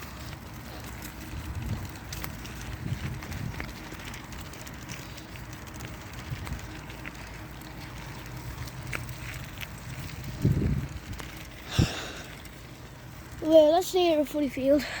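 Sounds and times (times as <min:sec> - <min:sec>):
small rattles and clicks: 0:00.0 - 0:14.9
bicycle tyres rumbling on dirt: 0:00.0 - 0:15.0
wind on microphone: 0:01.3 - 0:03.9, 0:10.0 - 0:12.0.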